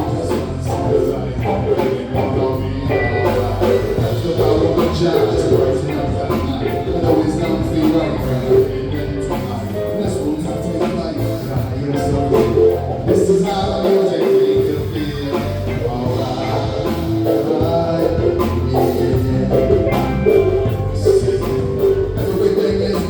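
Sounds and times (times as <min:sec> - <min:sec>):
live band music: 0:00.0 - 0:23.0.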